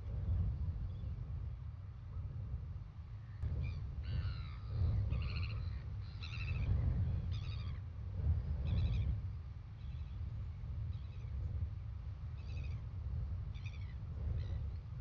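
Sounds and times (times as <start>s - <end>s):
wind rumbling on microphone: 0.0s - 15.0s
bird calls: 3.6s - 7.8s.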